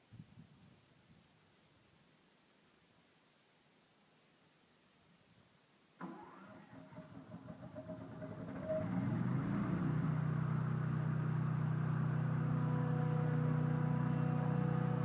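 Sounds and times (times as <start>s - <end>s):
sawmill engine running: 6.0s - 15.0s.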